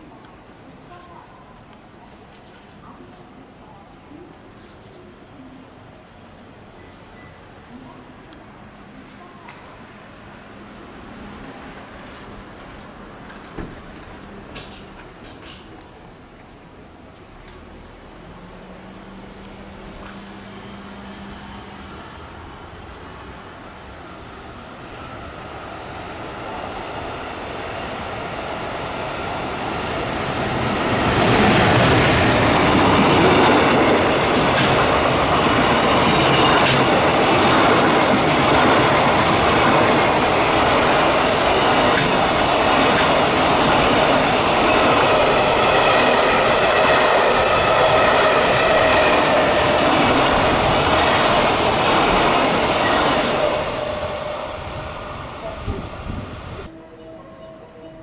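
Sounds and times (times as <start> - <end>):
freight train passing: 5.2 - 58.0
wheels clicking over rail joints: 12.0 - 15.9, 29.4 - 45.8.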